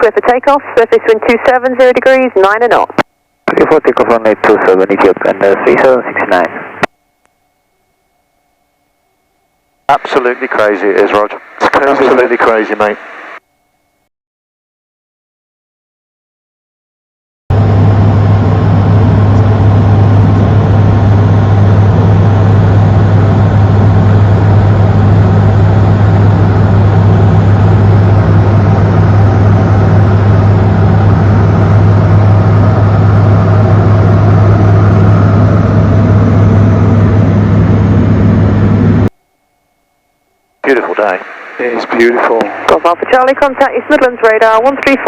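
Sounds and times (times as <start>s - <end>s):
light aircraft engine drone: 9.9s - 13.4s, 17.5s - 39.1s.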